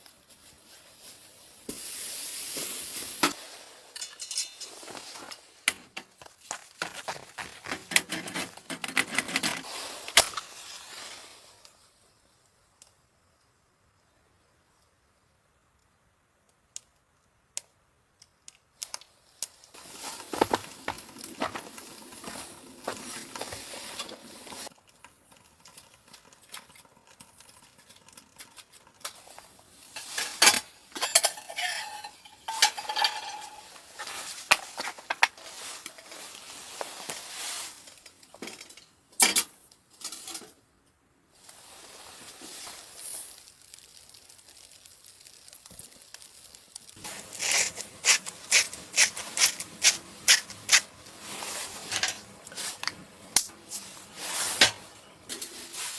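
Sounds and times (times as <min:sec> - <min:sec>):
steady hiss: 0:00.0 - 0:06.6, 0:09.6 - 0:16.4, 0:29.0 - 0:38.6, 0:41.2 - 0:55.9
metal cookware clinking and scraping: 0:04.0 - 0:05.4, 0:30.0 - 0:34.7, 0:47.4 - 0:53.0.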